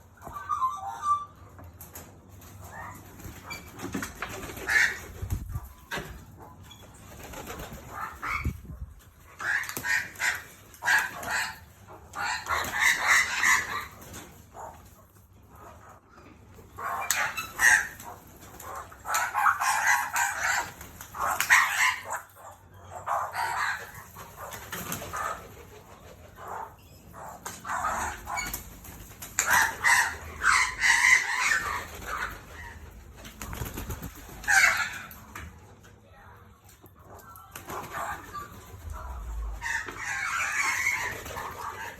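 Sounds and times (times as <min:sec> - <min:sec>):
bird wings flapping: 0:02.9 - 0:06.2, 0:07.1 - 0:08.6, 0:31.5 - 0:35.2, 0:40.6 - 0:41.9.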